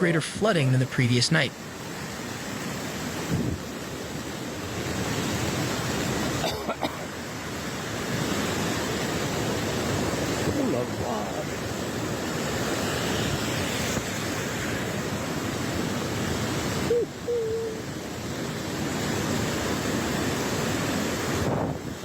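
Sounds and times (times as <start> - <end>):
floodwater rushing: 0.0 - 22.0
wind noise on microphone: 3.1 - 3.9, 18.7 - 22.0.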